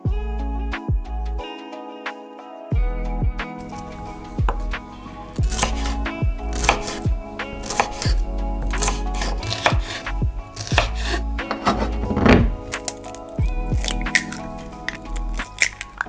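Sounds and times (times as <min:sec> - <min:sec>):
background music: 0:00.0 - 0:16.0
knife chopping on cutting board: 0:03.6 - 0:13.2.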